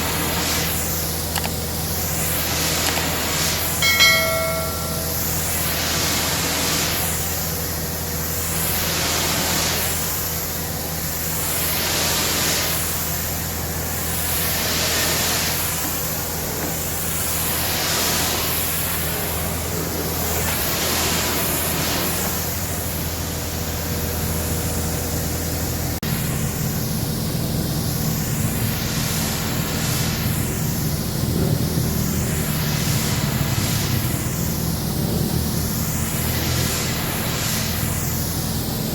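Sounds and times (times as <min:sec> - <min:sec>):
pressure washer spray hissing: 0:00.0 - 0:24.0, 0:25.8 - 0:38.9
low machine hum: 0:01.1 - 0:05.8.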